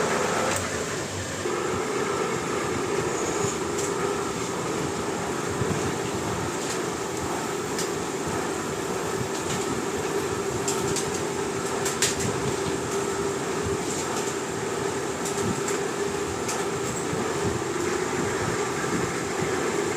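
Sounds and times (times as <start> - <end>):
milling machine humming: 0.0 - 19.9.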